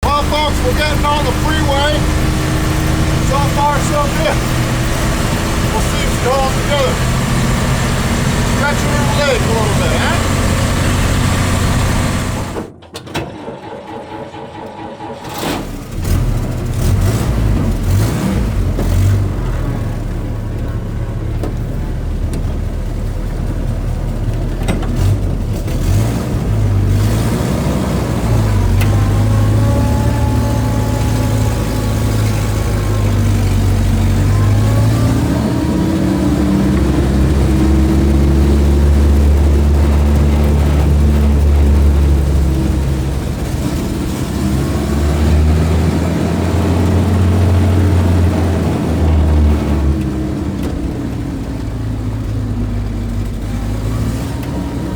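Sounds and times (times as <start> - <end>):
truck engine under load: 0.0 - 54.9.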